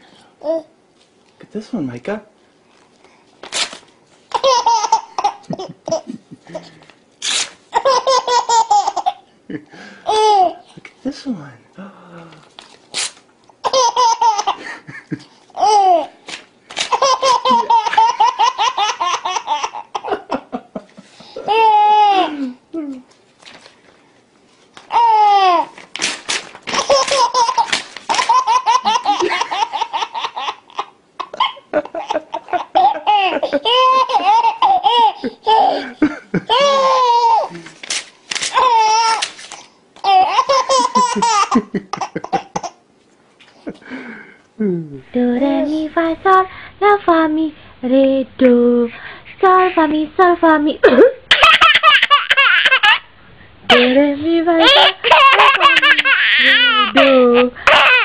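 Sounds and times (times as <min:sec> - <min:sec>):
paper tearing: 0:03.4 - 0:03.9, 0:07.2 - 0:07.6, 0:12.6 - 0:13.2, 0:25.6 - 0:28.4, 0:37.6 - 0:39.7
baby laughing and squealing: 0:04.3 - 0:06.1, 0:07.2 - 0:09.2, 0:13.6 - 0:14.6, 0:15.6 - 0:16.1, 0:16.8 - 0:20.2, 0:21.4 - 0:22.3, 0:24.9 - 0:25.7, 0:26.7 - 0:37.5, 0:38.5 - 0:42.8, 0:51.3 - 0:53.1, 0:54.6 - 0:58.0.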